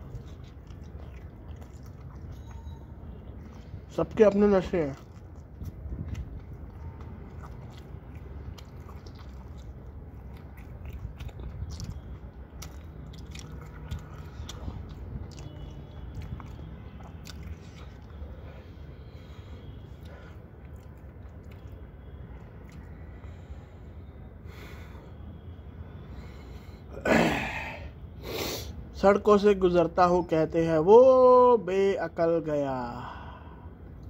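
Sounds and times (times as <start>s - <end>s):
person chewing crunchy food: 0.0s - 23.0s.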